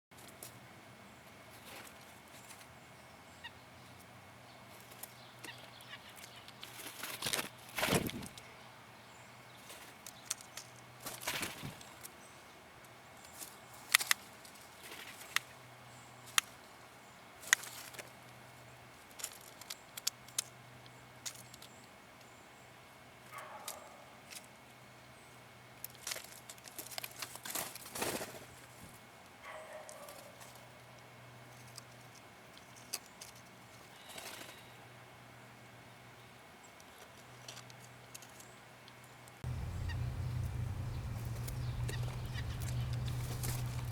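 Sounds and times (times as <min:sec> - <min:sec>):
soft short bird sounds: 0:33.0 - 0:34.8, 0:39.5 - 0:43.9
blue jay clicking: 0:39.4 - 0:43.9.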